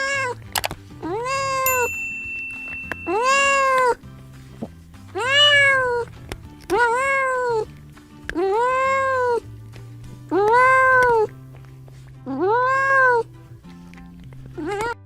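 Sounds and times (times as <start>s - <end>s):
cat meowing: 0.0s - 0.4s, 5.2s - 6.1s, 6.7s - 7.7s, 8.4s - 9.4s, 10.4s - 11.3s, 12.4s - 13.3s.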